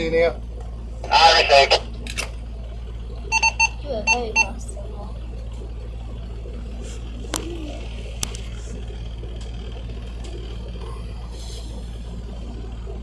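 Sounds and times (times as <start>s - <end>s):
boat engine humming: 0.0s - 13.0s
sharp clicks: 7.3s - 8.6s.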